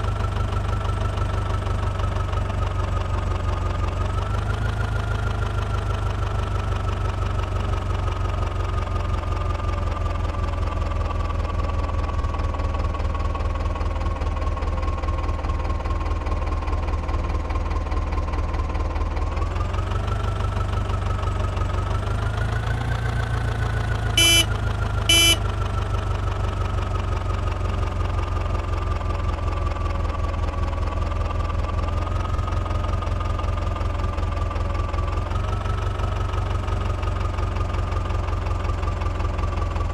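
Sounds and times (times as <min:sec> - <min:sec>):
diesel tractor engine running: 0:00.0 - 0:39.9
engine whine: 0:22.4 - 0:25.8
short horn beeps: 0:24.2 - 0:24.5, 0:25.1 - 0:25.4.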